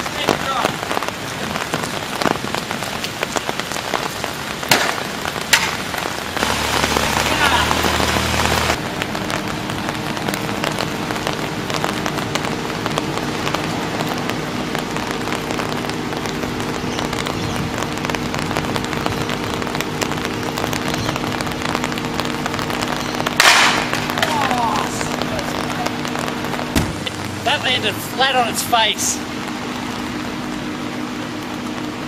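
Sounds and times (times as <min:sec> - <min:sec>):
light rain on concrete: 0:00.0 - 0:32.0
machinery hum: 0:06.0 - 0:32.0
object crashing on the ground: 0:23.4 - 0:24.1.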